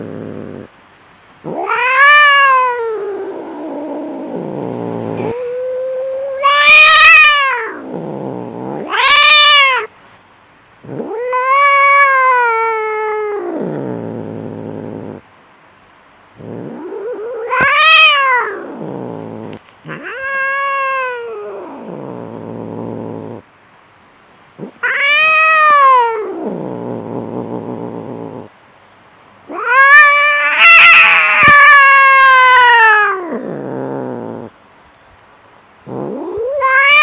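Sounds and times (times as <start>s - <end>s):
cat growling: 0.0s - 0.7s, 1.4s - 9.9s, 10.8s - 15.2s, 16.4s - 23.5s, 24.6s - 28.5s, 29.5s - 34.6s, 35.8s - 37.0s
cats yowling in a fight: 1.4s - 9.9s, 10.9s - 15.2s, 16.4s - 23.4s, 24.6s - 28.5s, 29.5s - 34.5s, 35.9s - 37.0s
cat screeching: 1.5s - 3.7s, 6.2s - 7.8s, 8.7s - 9.9s, 10.9s - 13.4s, 16.6s - 18.6s, 19.9s - 21.9s, 24.6s - 26.4s, 29.5s - 33.6s, 36.0s - 37.0s.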